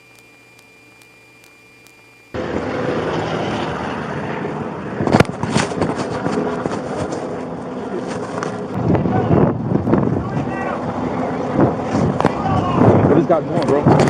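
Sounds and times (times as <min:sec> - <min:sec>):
faint steady hum: 0:00.0 - 0:02.4
soft regular ticks: 0:00.0 - 0:02.4
loud steady rushing noise: 0:02.3 - 0:13.6.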